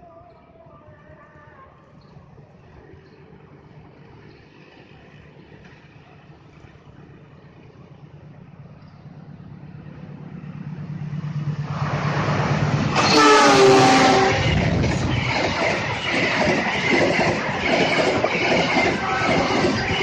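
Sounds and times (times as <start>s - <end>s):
locomotive rumbling: 2.5s - 20.0s
multi-note train horn: 13.0s - 14.6s.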